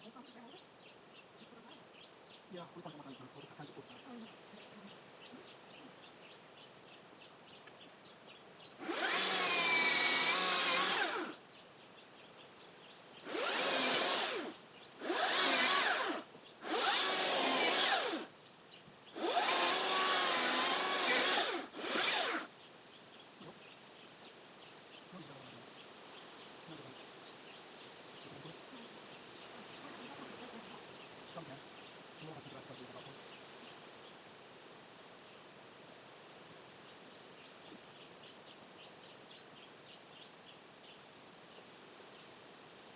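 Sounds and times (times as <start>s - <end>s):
cordless chainsaw motor whine: 8.8s - 11.4s, 13.3s - 18.3s, 19.2s - 22.5s.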